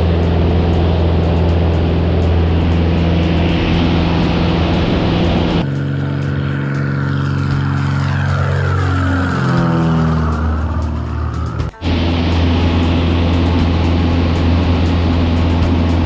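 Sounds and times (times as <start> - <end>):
propeller airplane engine: 0.0 - 16.0
sweeping pitched tones: 0.0 - 16.0.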